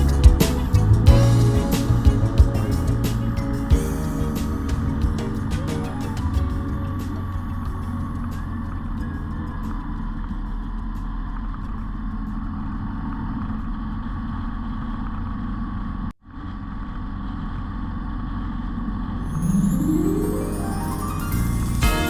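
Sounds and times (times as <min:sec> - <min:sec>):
rising musical sweep: 0:19.2 - 0:22.0.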